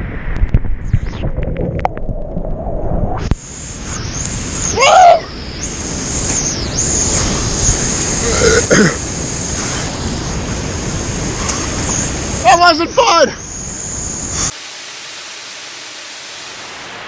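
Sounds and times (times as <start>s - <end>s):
person crying out: 4.7s - 5.3s.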